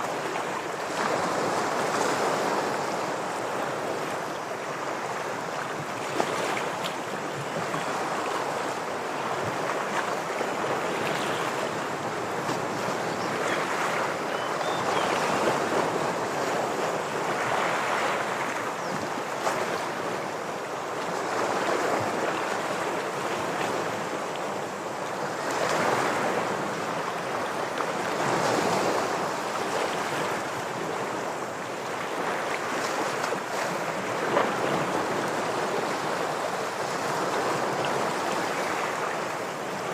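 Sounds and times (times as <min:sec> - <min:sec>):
ocean waves washing against rocks: 0:19.5 - 0:39.9.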